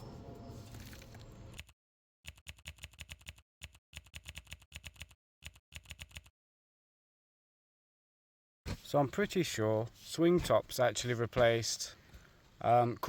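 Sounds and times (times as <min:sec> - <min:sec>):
rapid clicking bursts: 0:02.3 - 0:06.3.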